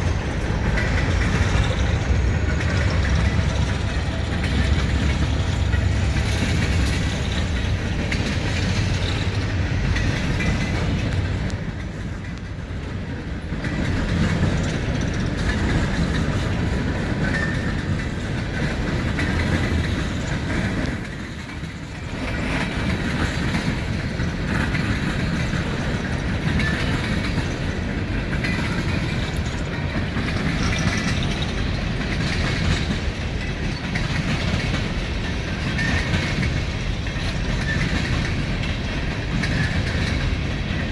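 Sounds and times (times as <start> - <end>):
train wheels clattering on rails: 0.0 - 40.9.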